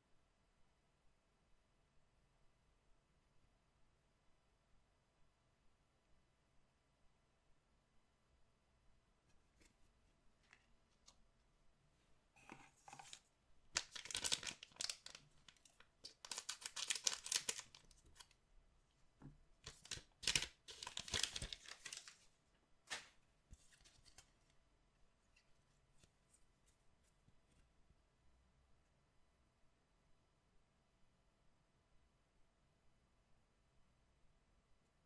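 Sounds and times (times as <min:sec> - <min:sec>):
card pack wrappers tearing: 0:13.8 - 0:18.3, 0:19.7 - 0:22.2.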